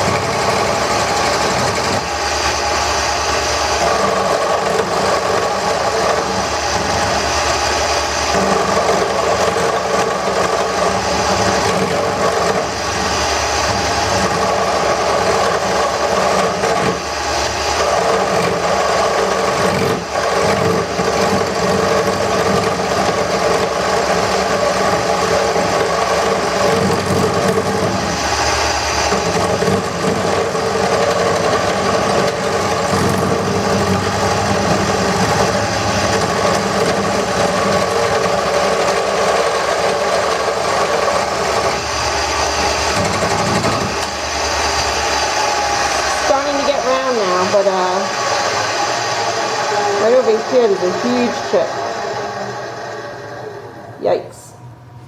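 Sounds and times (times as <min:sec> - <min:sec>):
gouge cutting spinning wood: 0:00.0 - 0:54.2
lathe motor humming: 0:00.0 - 0:55.0.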